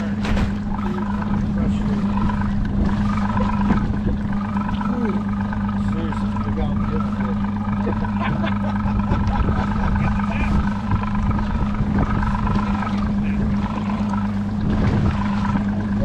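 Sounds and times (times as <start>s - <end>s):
boat motor humming: 0.0s - 16.0s
wind buffeting microphone: 0.0s - 16.0s.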